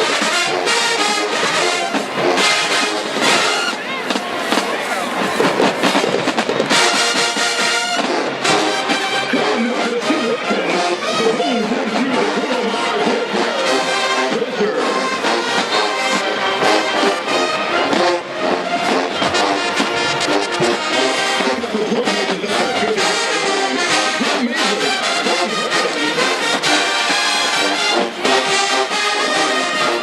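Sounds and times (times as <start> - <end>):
marching band brass: 0.0 - 30.0
percussion hits: 0.2 - 9.1.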